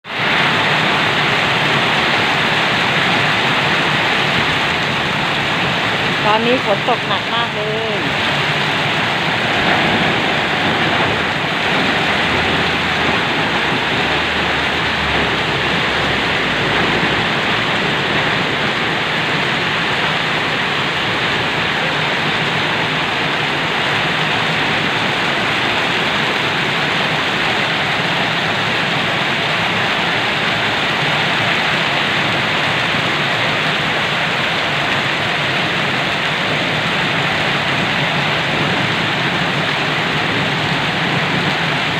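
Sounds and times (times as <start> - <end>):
heavy rain: 0.0 - 41.9.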